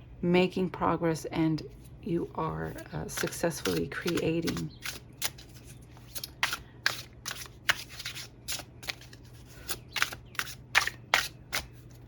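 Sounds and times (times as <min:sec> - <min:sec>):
cards being shuffled: 0:02.6 - 0:12.0.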